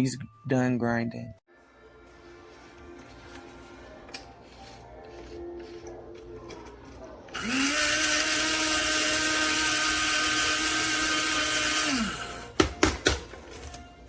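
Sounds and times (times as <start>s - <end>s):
coffee grinder whining: 2.9s - 12.6s.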